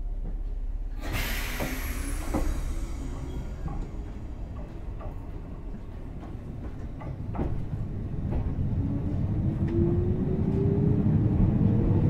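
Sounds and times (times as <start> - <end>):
train rumble on board: 0.0 - 12.0
air hiss: 1.0 - 4.8.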